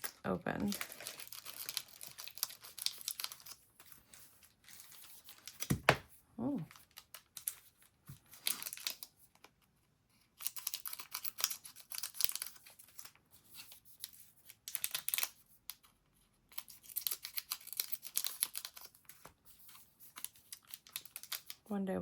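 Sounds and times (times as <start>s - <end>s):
foil packs crinkling and tearing: 0.0s - 3.6s.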